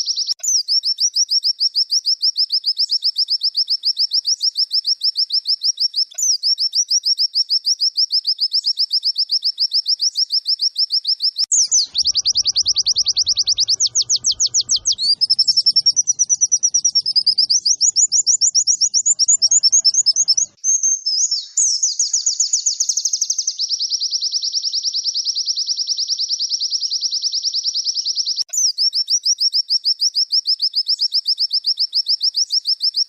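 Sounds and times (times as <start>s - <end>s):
bird trilling: 11.4s - 20.6s.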